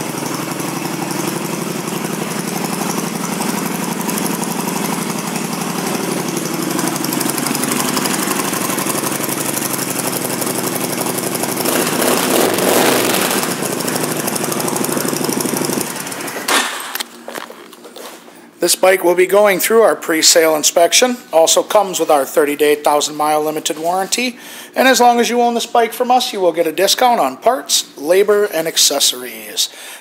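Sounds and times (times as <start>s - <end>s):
motorcycle engine idling: 0.0s - 16.9s.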